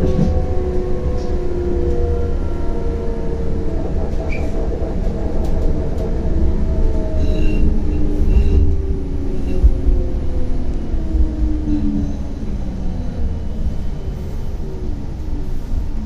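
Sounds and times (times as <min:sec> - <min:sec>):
tram motor whine: 0:00.0 - 0:16.0
wheels rumbling on rails: 0:00.0 - 0:16.0.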